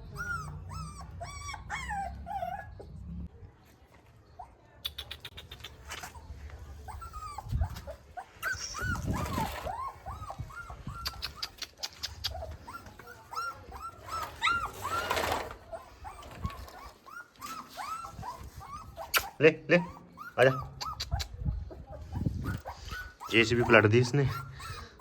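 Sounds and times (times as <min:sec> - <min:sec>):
puppy whimpering: 0:00.0 - 0:03.1, 0:04.4 - 0:25.0
rustling: 0:14.0 - 0:18.8.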